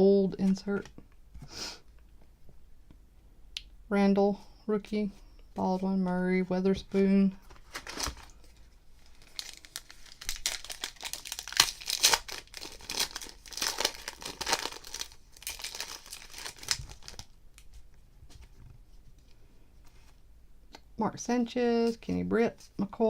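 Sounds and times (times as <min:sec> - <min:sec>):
plastic wrapper tearing and crinkling: 0:07.5 - 0:17.8.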